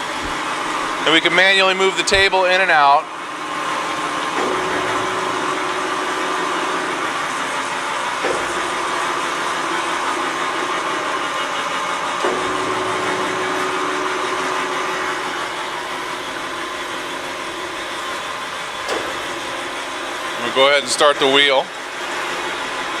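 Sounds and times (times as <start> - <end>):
surface grinder hum and hiss: 3.2 - 23.0
mechanical knock: 4.4 - 5.8, 8.2 - 11.1, 12.2 - 18.2, 18.9 - 19.7.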